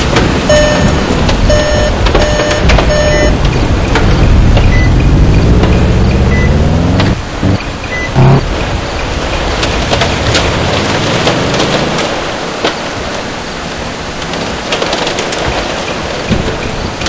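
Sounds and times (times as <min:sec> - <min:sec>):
rain and hail drumming on car: 0:00.0 - 0:17.0
car warning chime beeping: 0:00.5 - 0:03.4, 0:04.7 - 0:05.0, 0:06.1 - 0:08.4
car engine revving: 0:03.8 - 0:08.8.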